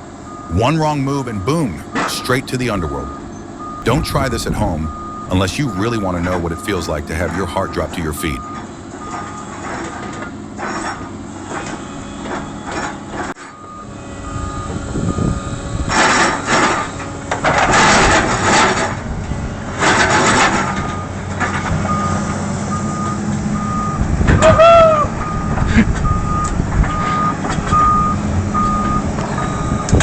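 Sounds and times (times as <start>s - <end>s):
reversing alarm beeping: 0.2s - 10.0s, 13.4s - 15.9s, 21.8s - 30.0s.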